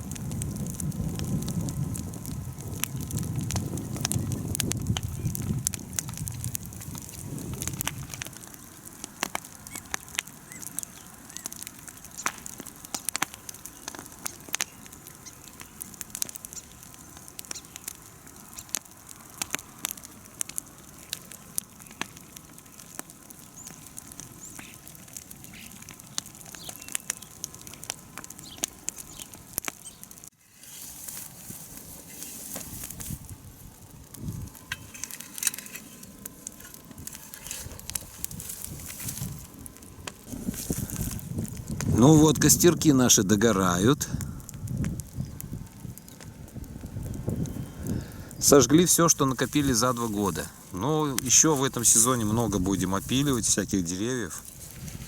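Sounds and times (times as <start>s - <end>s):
bonfire crackling: 0.0s - 55.0s
steady fire hiss: 0.0s - 55.0s
sharp pops: 2.2s - 33.3s, 47.4s - 55.0s.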